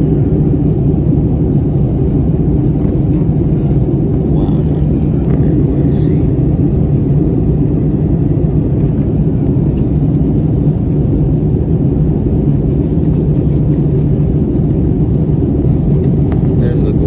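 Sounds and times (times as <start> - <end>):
airplane cabin engine rumble: 0.0 - 17.0.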